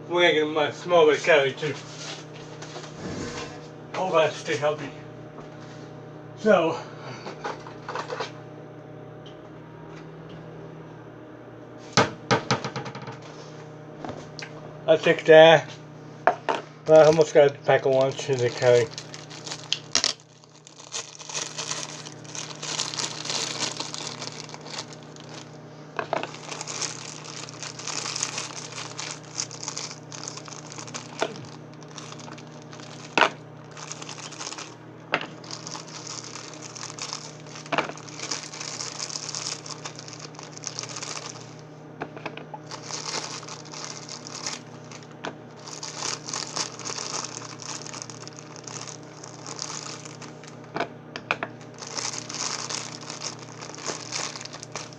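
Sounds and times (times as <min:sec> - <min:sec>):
microwave oven humming: 0:00.0 - 0:54.9
crackling and crinkling: 0:16.9 - 0:54.9.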